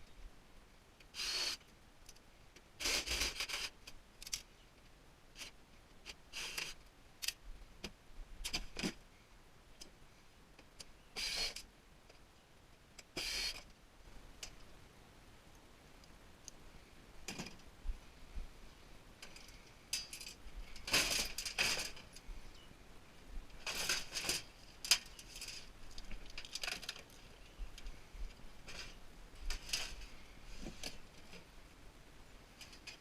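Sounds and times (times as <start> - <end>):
metal parts clinking and rattling: 19.2 - 22.2, 23.6 - 27.2.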